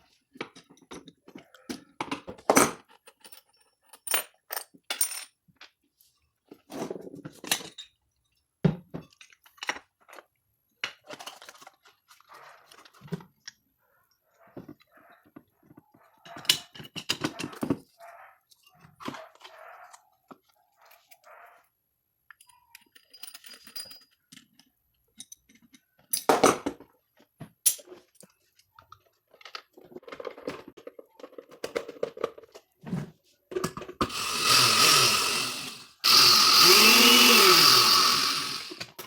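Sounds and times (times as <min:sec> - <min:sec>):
blender parts clicking and knocking: 0:33.5 - 0:39.0
electric blender motor running: 0:34.0 - 0:39.0.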